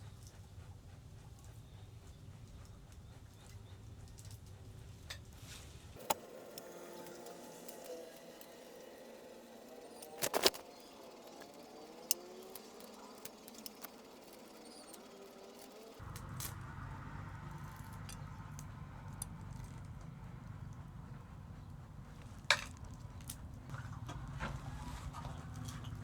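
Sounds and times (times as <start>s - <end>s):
steady low noise: 16.0s - 23.7s.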